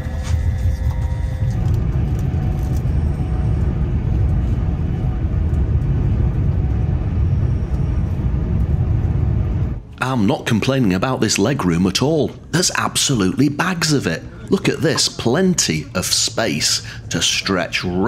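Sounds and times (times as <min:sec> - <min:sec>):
electric train rumble from inside: 0:00.0 - 0:10.0.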